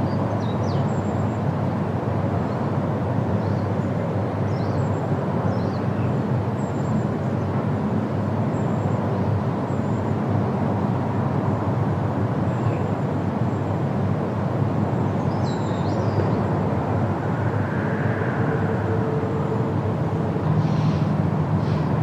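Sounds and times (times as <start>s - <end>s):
wind through trees: 0.0s - 22.0s.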